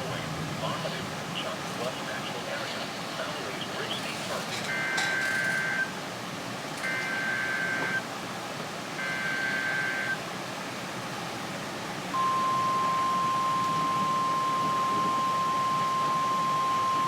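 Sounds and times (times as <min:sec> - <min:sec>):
radio hiss: 0:00.0 - 0:04.6
steady alarm tone: 0:09.0 - 0:10.2, 0:12.2 - 0:17.0.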